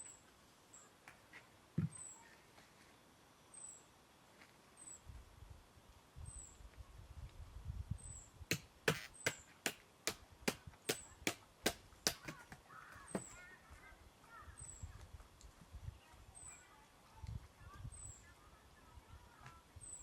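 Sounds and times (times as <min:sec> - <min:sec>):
blade chopping wood: 0:08.5 - 0:12.6.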